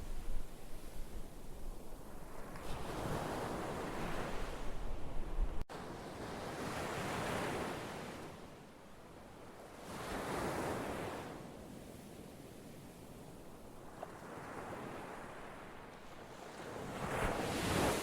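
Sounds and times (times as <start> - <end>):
wind rumble on microphone: 0.0 - 5.6
ocean waves washing in: 16.9 - 18.0.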